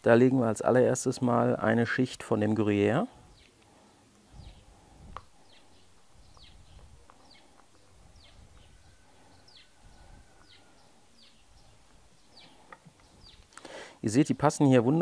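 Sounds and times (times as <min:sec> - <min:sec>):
bird chirping: 0:03.1 - 0:14.4.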